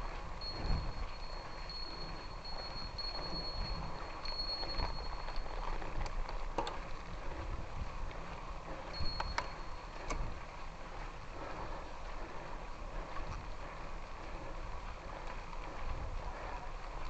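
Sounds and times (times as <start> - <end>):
thin wavering high whine: 0.0 - 6.2, 8.7 - 10.7
bicycle ticking and clicks: 0.0 - 17.0
bicycle tyres on gravel: 0.0 - 17.0.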